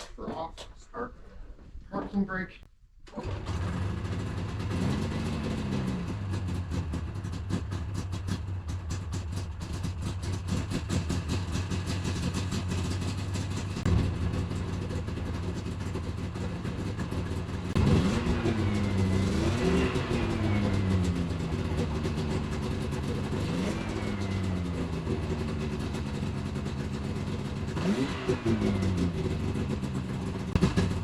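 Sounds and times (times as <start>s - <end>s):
engine throttle blips: 3.1s - 31.0s
snowmobile engine idling: 3.2s - 31.0s.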